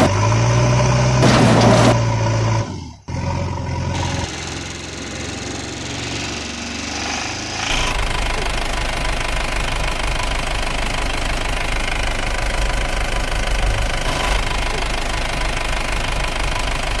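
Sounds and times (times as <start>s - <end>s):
vehicle engine knocking: 7.7s - 17.0s.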